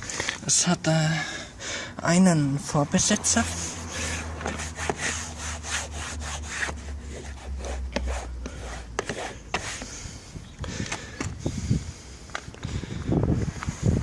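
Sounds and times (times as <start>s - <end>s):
rubbing or scraping strokes: 3.1s - 10.3s.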